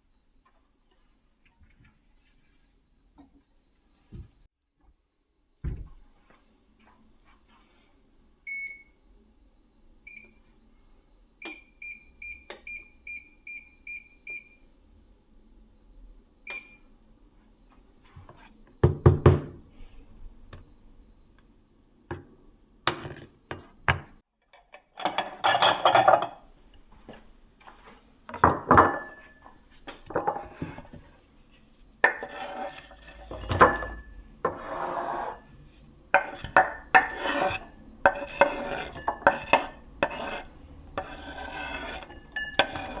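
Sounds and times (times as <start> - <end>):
pots and pans clattering: 24.6 - 26.4, 28.4 - 29.4, 30.0 - 31.0, 32.0 - 35.4, 36.2 - 39.8, 42.0 - 43.0.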